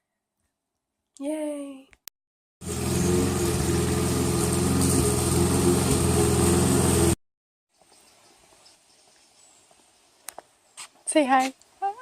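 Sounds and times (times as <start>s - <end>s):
engine running steadily: 2.6s - 7.2s.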